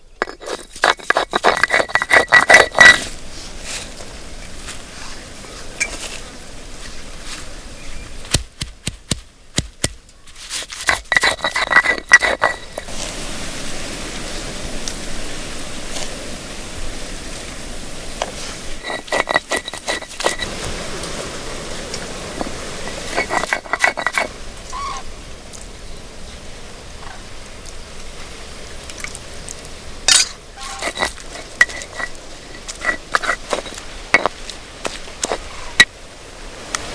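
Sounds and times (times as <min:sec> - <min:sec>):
metal utensil scraping metal pan: 0:00.2 - 0:03.1, 0:10.8 - 0:12.9, 0:18.7 - 0:20.5, 0:23.0 - 0:24.3, 0:30.1 - 0:34.3
steady hiss: 0:12.0 - 0:36.9.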